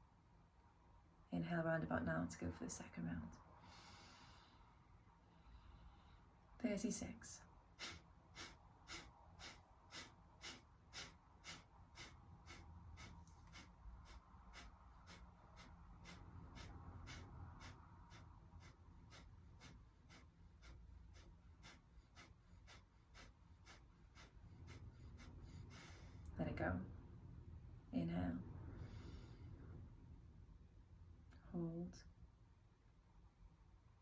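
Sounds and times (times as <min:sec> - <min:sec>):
forceful exhales through nose: 0:07.8 - 0:26.2.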